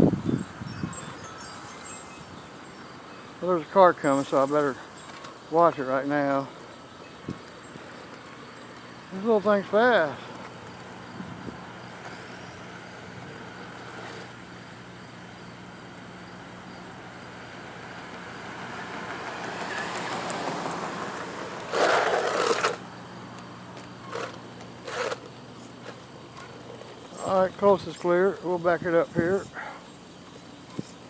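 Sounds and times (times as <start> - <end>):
car driving past: 17.8 - 22.8.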